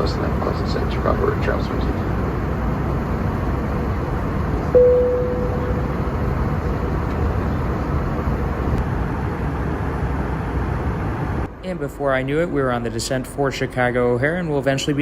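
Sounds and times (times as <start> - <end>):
airliner cabin noise: 0.0 - 11.5
cabin chime: 4.8 - 6.0.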